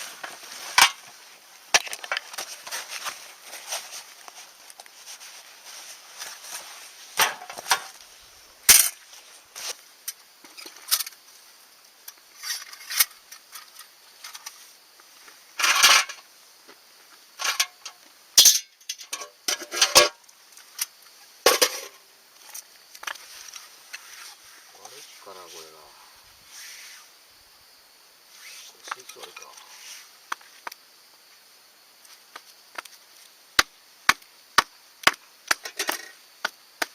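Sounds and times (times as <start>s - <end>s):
objects clattering: 0.0s - 4.0s, 5.7s - 8.0s, 15.6s - 16.2s, 21.5s - 22.6s.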